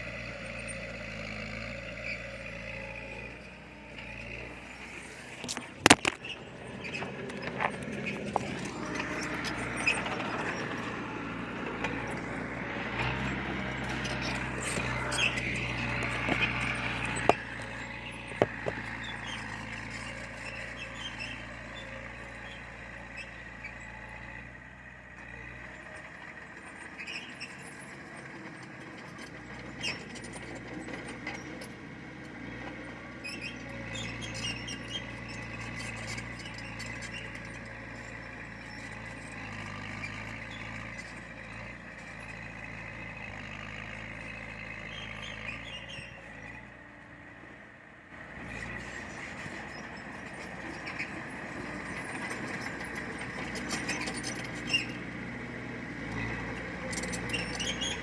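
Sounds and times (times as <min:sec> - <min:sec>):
diesel machinery running: 0:00.0 - 0:58.0
sharp knocks: 0:18.4 - 0:18.8.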